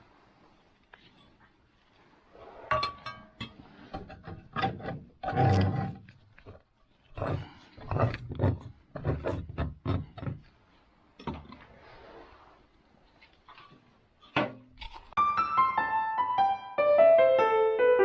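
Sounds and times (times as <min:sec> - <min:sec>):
file rasping on a saw: 0:03.8 - 0:10.6
piano music: 0:15.2 - 0:18.0.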